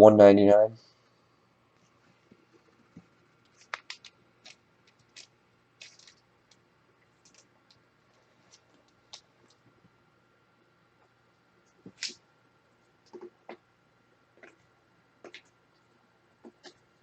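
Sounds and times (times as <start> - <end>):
trading cards clicking and scraping: 3.4 - 6.6.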